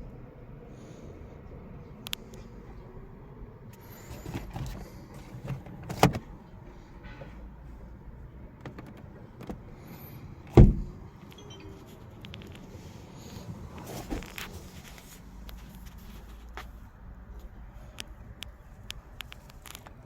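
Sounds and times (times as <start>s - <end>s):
knocks and clunks on a car: 8.4s - 9.7s, 10.5s - 11.0s
heavy sudden thuds: 10.5s - 11.0s.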